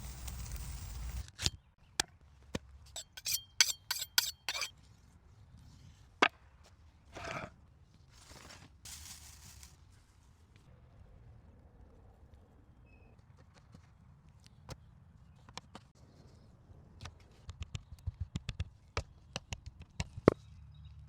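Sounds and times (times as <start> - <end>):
metal or glass clinking: 3.0 - 4.7.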